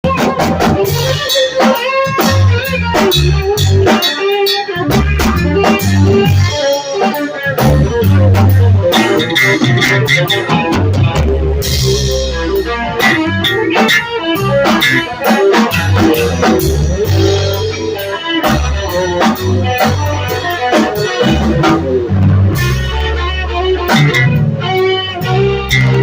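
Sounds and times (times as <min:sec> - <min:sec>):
bass guitar notes: 0:00.0 - 0:26.0
drum kit beat: 0:00.0 - 0:26.0
electric guitar: 0:00.0 - 0:26.0
held bass note: 0:15.8 - 0:26.0.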